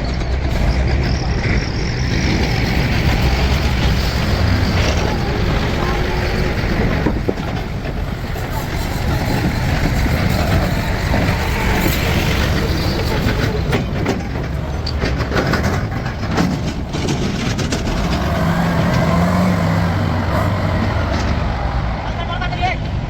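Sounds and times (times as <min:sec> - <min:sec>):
rattling: 0:00.0 - 0:21.5
diesel engine running: 0:00.0 - 0:23.0
clanking knocks: 0:02.2 - 0:19.9.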